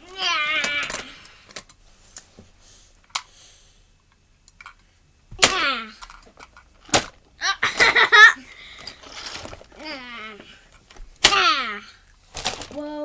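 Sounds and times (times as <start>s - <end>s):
child's voice: 0.0s - 1.2s, 9.8s - 10.5s, 11.3s - 12.0s, 12.7s - 13.0s
toy trucks clacking together: 0.5s - 1.8s, 5.4s - 9.9s.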